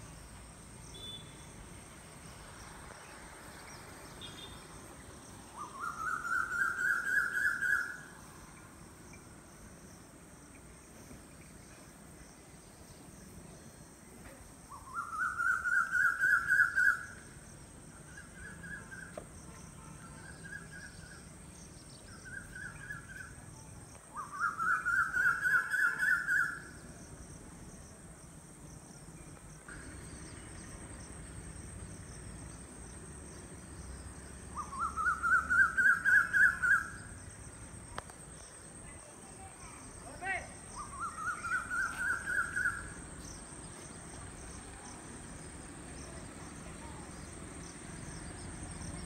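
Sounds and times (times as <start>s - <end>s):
bird calling: 34.5s - 37.2s, 40.8s - 43.0s.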